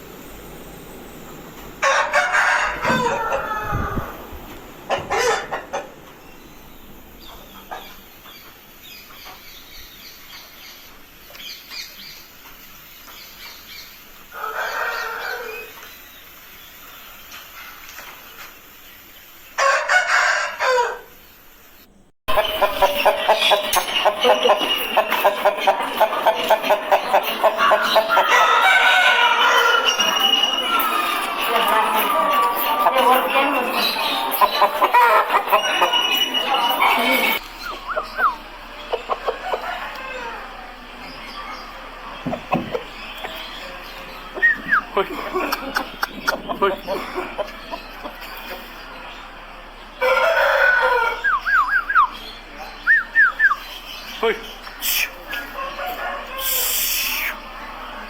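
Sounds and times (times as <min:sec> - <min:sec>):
rooster crowing: 0:01.8 - 0:06.0, 0:14.3 - 0:15.8, 0:19.6 - 0:21.2, 0:22.3 - 0:49.0, 0:50.0 - 0:52.1, 0:55.1 - 0:57.6.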